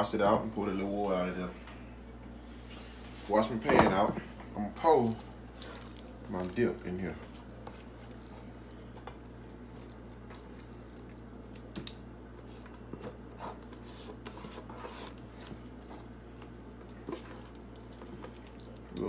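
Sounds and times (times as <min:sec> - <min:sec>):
steady low hum: 0:00.0 - 0:19.0
wet squishes of dip: 0:04.8 - 0:19.0.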